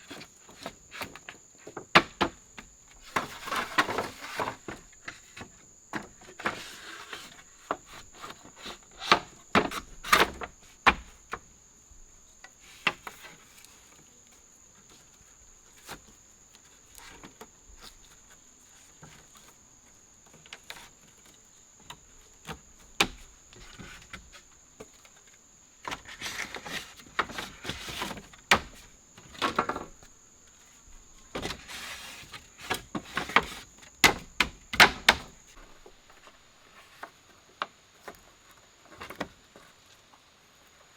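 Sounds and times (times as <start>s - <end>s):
rustling: 3.0s - 11.4s, 12.5s - 34.0s.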